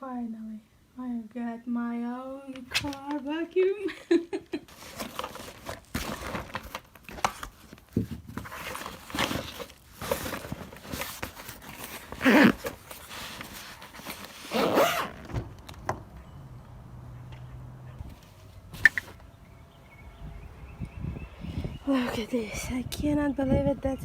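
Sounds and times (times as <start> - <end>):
packaging rustles: 4.6 - 15.8.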